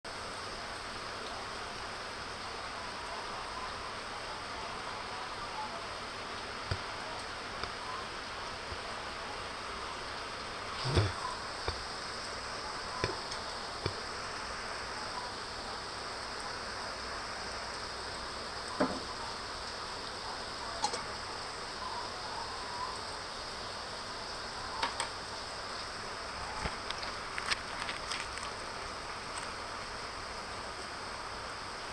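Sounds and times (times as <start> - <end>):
rain hissing in forest: 0.0 - 31.9
high insect drone: 0.1 - 31.9
sharp water drips: 9.5 - 18.8.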